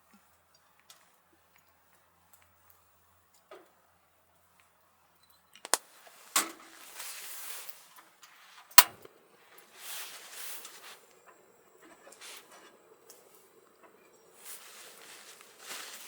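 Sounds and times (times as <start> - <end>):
sharp handling clicks: 5.6 - 5.8, 8.8 - 9.1
rustling: 5.7 - 16.0.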